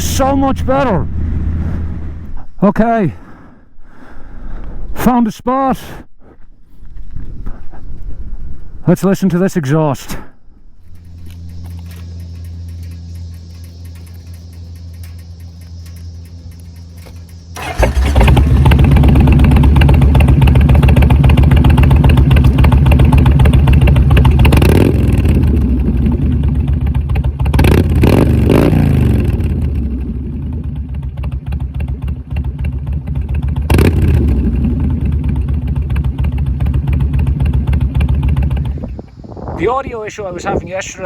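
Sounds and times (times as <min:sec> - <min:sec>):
motorcycle engine revving: 0:00.0 - 0:02.5, 0:10.8 - 0:39.4.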